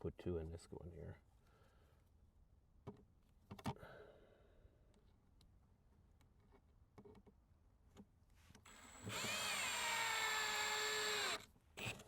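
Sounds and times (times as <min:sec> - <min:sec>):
power drill driving screw into wood: 0:08.7 - 0:12.0.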